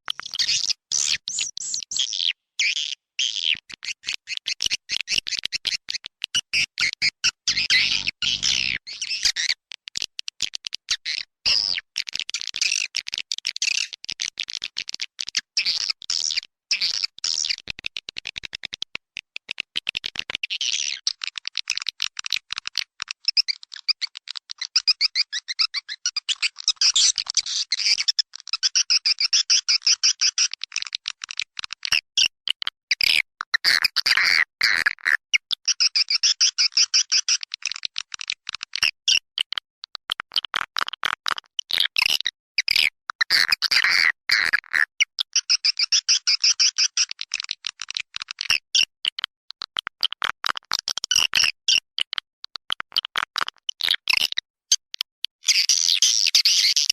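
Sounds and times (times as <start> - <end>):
swiftlets twittering and chirping: 0.1 - 4.6, 6.5 - 9.1.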